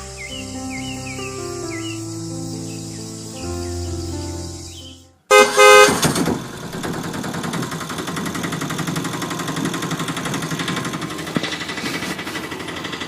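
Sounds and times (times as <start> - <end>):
small diesel engine knocking: 5.3 - 13.0.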